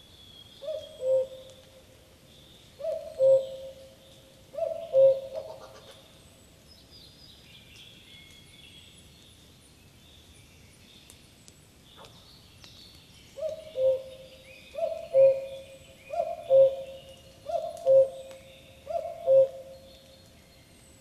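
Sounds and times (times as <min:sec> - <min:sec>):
songbirds twittering: 0:00.0 - 0:21.0
cuckoo calling: 0:00.6 - 0:01.7, 0:02.8 - 0:04.0, 0:04.6 - 0:05.9, 0:13.4 - 0:19.9.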